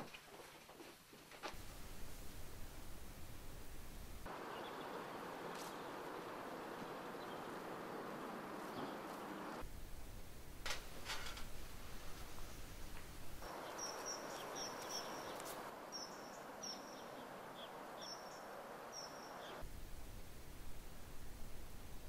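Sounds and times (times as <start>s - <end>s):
steady background hiss: 0.0s - 22.0s
bird chirping: 4.3s - 9.6s, 13.4s - 19.6s.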